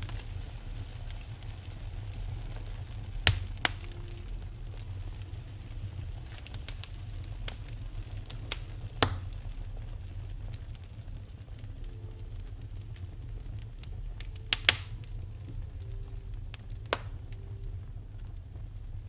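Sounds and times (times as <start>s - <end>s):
fire crackling and popping: 0.0s - 19.0s
low rumble: 0.0s - 19.0s.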